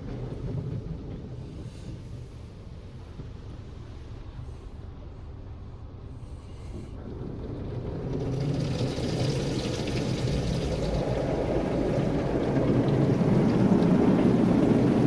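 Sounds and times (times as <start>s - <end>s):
car wash spraying water: 8.1s - 15.0s.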